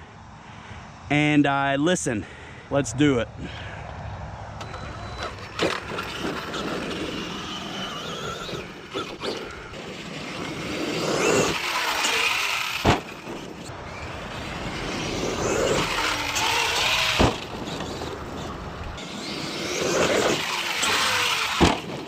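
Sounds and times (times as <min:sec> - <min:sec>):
electric motor whining: 0:04.6 - 0:22.0
toy truck hitting ground: 0:05.1 - 0:22.0.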